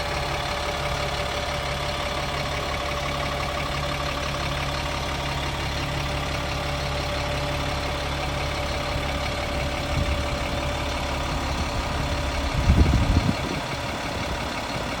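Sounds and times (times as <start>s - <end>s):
diesel truck idling: 0.0s - 15.0s
rough low rumble: 0.0s - 15.0s.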